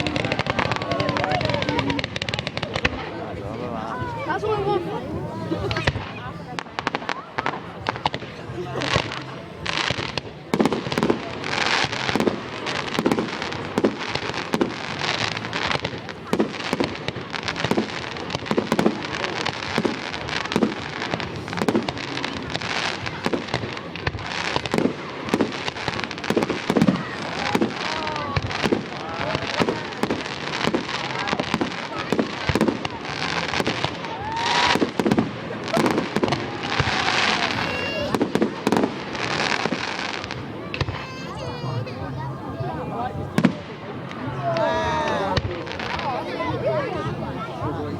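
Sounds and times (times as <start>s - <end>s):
fireworks bangs: 0.0s - 47.9s.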